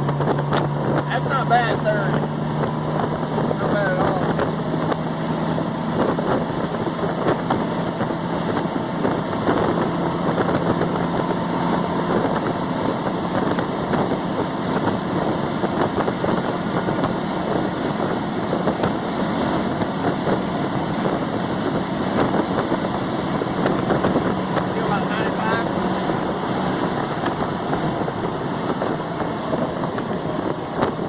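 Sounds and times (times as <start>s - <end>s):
pickup truck engine: 0.0s - 31.0s
tyre and wind noise: 0.0s - 31.0s.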